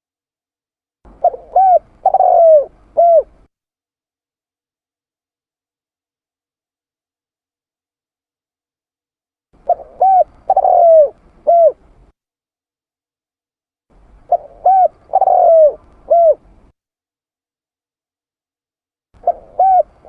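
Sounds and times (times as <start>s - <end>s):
dove cooing: 1.1s - 3.5s, 9.6s - 12.0s, 14.2s - 16.7s, 19.2s - 20.0s.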